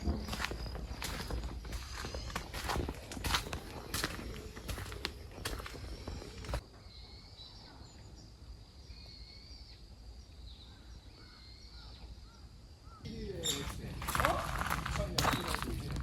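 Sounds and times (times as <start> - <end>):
footsteps: 0.0 - 6.6, 13.4 - 16.0
small birds chirping: 0.0 - 16.0
person speaking: 13.1 - 16.0.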